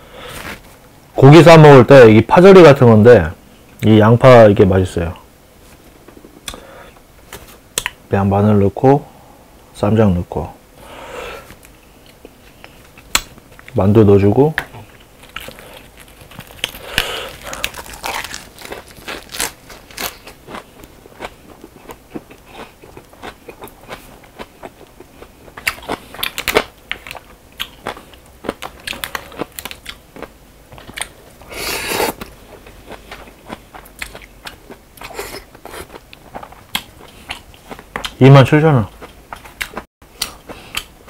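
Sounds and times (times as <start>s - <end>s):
chewing and crunching: 14.8s - 31.2s, 31.9s - 38.2s, 38.9s - 41.0s.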